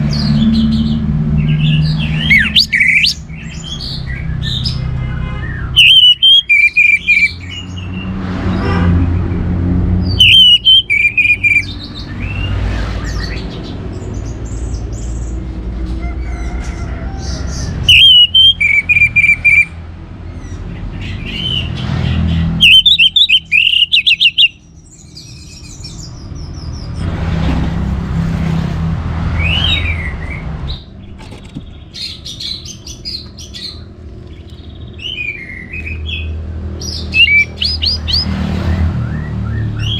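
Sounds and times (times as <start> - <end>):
thrush singing: 0.3 - 4.8, 5.6 - 8.0, 10.1 - 12.6, 17.8 - 19.7, 22.6 - 24.6, 37.0 - 38.4
faint high chirps: 5.8 - 7.3, 10.2 - 11.6.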